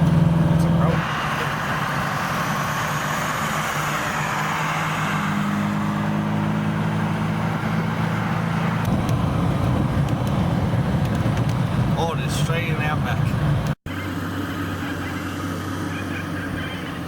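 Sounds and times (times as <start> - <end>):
car engine hum: 0.0 - 17.0
road noise: 0.0 - 17.0
deep rumble: 7.2 - 13.8.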